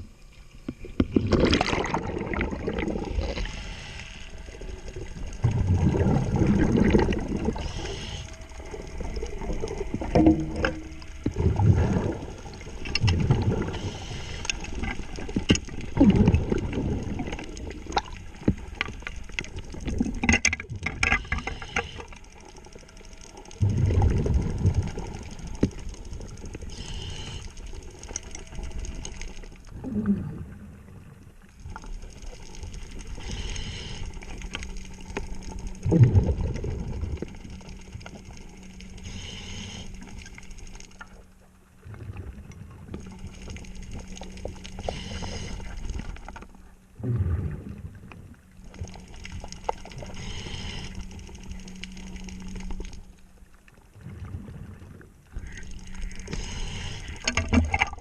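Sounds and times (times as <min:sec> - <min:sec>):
exhaust bubbles underwater: 0:00.8 - 0:03.7, 0:04.5 - 0:22.0, 0:22.7 - 0:27.4, 0:28.4 - 0:40.3, 0:41.7 - 0:46.2, 0:46.9 - 0:53.1, 0:53.7 - 0:58.0
diver breathing underwater: 0:05.8 - 0:09.2, 0:13.4 - 0:14.8, 0:26.7 - 0:27.6, 0:33.1 - 0:34.5, 0:39.0 - 0:40.2, 0:44.8 - 0:46.0, 0:50.0 - 0:51.4, 0:55.4 - 0:57.8.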